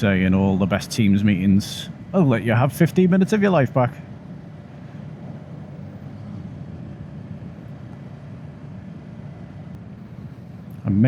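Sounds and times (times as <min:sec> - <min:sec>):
wind rushing over microphone: 0:00.0 - 0:10.8.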